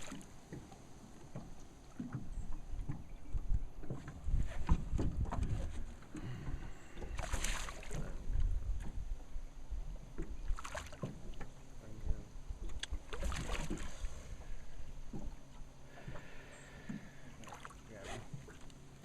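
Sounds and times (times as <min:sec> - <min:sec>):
knocks in a boat: 0:00.0 - 0:09.1, 0:10.1 - 0:13.9, 0:15.0 - 0:18.6.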